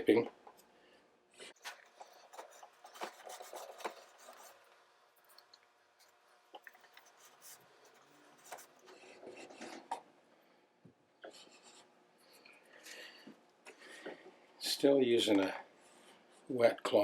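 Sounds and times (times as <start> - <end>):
rubbing and scraping on wood: 1.6 - 4.6.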